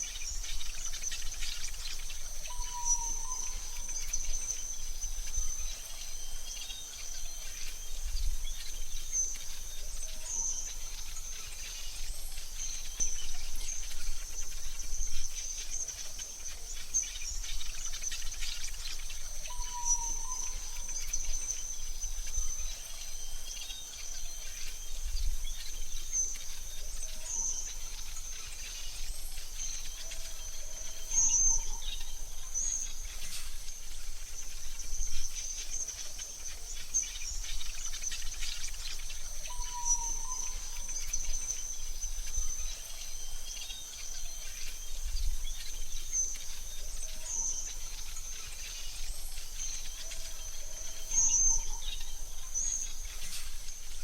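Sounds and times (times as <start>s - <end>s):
bird chirps: 0.0s - 54.0s
high insect trill: 0.0s - 54.0s.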